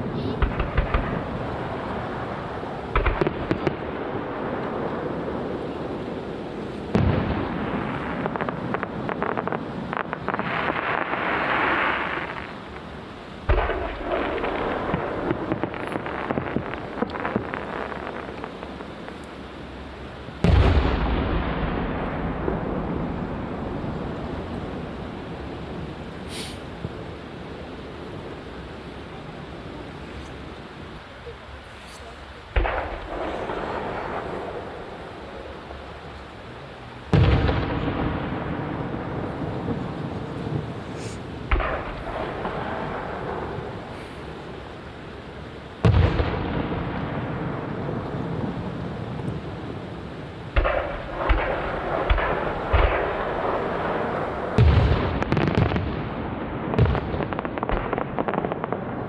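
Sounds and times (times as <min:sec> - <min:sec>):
crackling firework pops: 0:00.0 - 0:05.0, 0:05.8 - 0:19.6, 0:20.4 - 0:24.9, 0:26.3 - 0:27.0, 0:31.8 - 0:36.3, 0:37.1 - 0:44.3, 0:45.8 - 0:48.4, 0:50.5 - 0:59.0
rolling echo: 0:00.0 - 0:29.6, 0:32.5 - 0:59.0
firework hissing rush: 0:26.1 - 0:26.8, 0:39.4 - 0:45.2.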